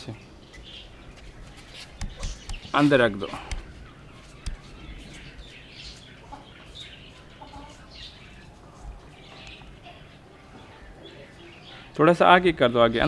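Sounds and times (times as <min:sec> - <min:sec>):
small birds chirping: 0:00.0 - 0:13.0
sharp click: 0:02.0 - 0:03.7, 0:04.4 - 0:04.7.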